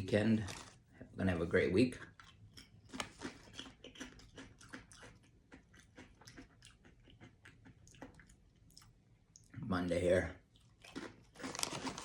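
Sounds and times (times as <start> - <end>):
person chewing crunchy chips: 2.1 - 9.0, 10.5 - 12.0.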